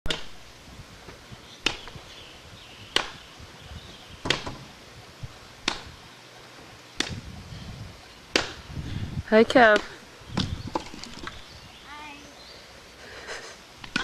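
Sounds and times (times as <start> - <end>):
wood chopping strikes: 1.6 - 2.0, 2.9 - 3.2, 4.2 - 4.7, 5.6 - 5.9, 7.0 - 7.2, 8.3 - 8.6, 9.6 - 11.4.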